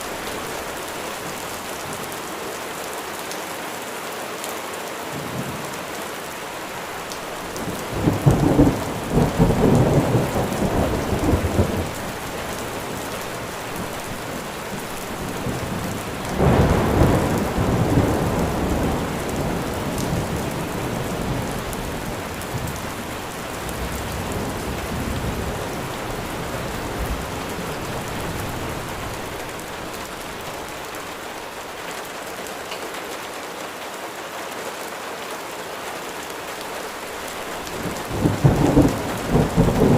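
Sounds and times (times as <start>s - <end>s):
steady rain falling: 0.0s - 39.9s
thunder rolling: 7.5s - 13.0s, 13.8s - 23.0s, 37.8s - 39.9s.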